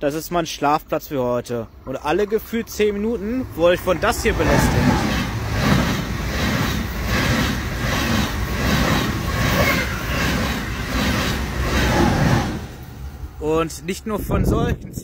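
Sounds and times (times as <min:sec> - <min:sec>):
high-speed train passing: 0:01.7 - 0:15.0
rhythmic wheel beat on rails: 0:03.1 - 0:13.3.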